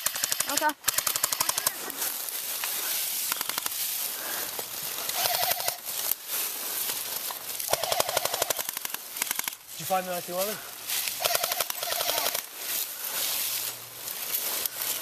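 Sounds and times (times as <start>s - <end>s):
airsoft guns firing bursts: 0.0s - 1.9s, 5.1s - 5.8s, 7.7s - 9.6s, 11.2s - 12.5s
single shots crackling: 0.0s - 1.9s, 7.8s - 9.7s, 11.1s - 12.5s.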